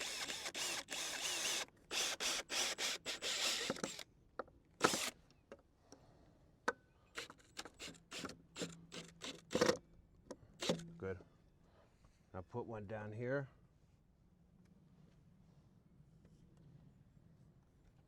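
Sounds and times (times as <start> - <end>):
screw driven into wood: 0.0 - 4.0, 4.8 - 5.2, 10.6 - 10.9.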